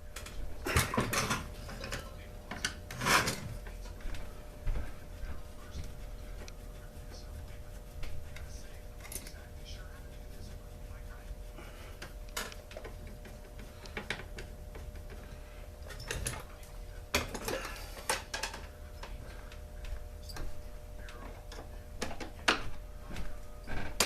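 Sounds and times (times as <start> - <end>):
tools and parts clicking and knocking: 17.1 - 18.7.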